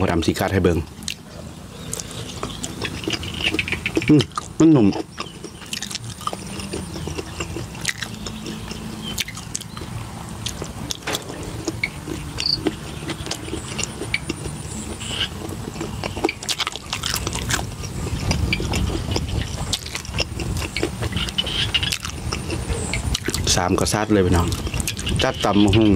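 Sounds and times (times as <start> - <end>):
man chewing food: 0.2 - 25.5
wet mouth clicks: 1.9 - 23.5.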